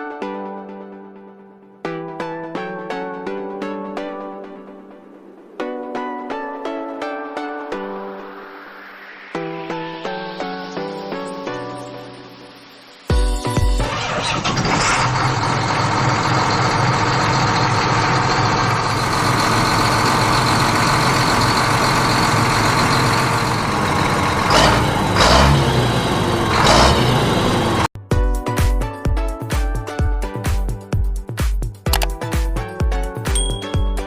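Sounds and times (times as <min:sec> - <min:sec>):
tractor engine running: 0:13.7 - 0:27.9.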